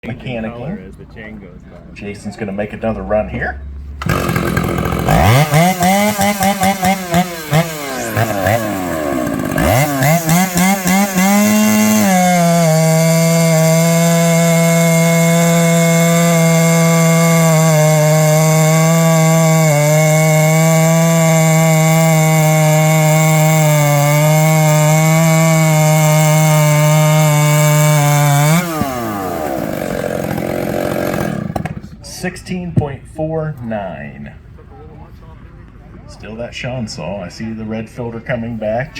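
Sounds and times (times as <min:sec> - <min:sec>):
chainsaw cutting log: 0:04.0 - 0:32.1.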